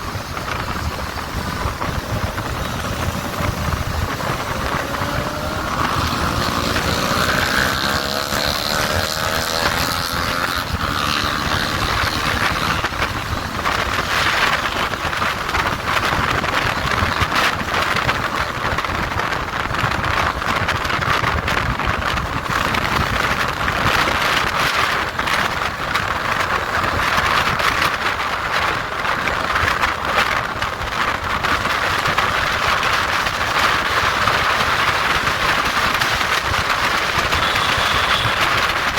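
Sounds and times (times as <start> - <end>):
motorcycle engine accelerating: 0.0 - 38.9
wind rushing over microphone: 0.0 - 38.9.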